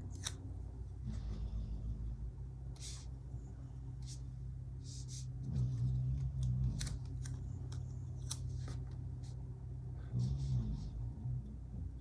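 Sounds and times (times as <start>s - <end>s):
scissors snipping paper: 0.0s - 0.4s, 6.2s - 8.9s.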